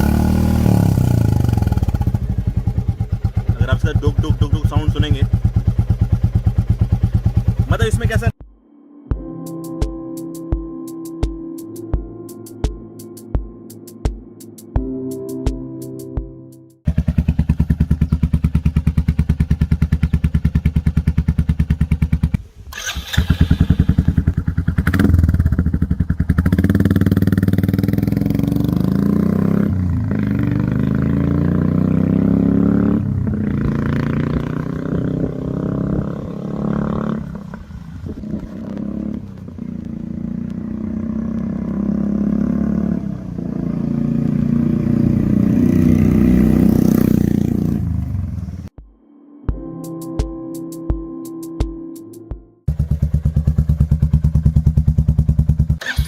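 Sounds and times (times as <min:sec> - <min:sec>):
motorcycle engine idling and revving: 0:00.0 - 0:08.4, 0:16.8 - 0:48.7, 0:52.6 - 0:56.0.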